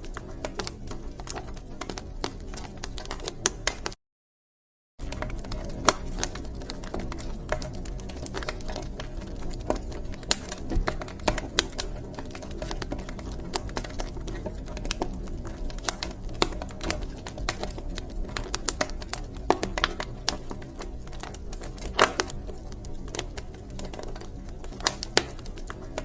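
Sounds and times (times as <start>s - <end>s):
wood fire crackling: 0.0s - 4.0s, 5.0s - 26.0s.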